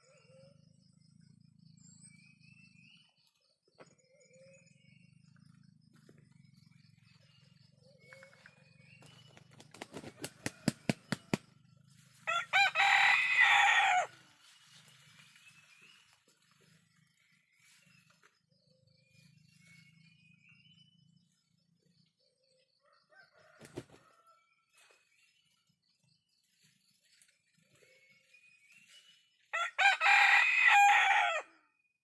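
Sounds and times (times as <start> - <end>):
rooster beating its wings: 9.2 - 11.5, 23.6 - 24.1
rooster crowing: 12.2 - 14.2, 22.8 - 24.6, 29.5 - 31.7.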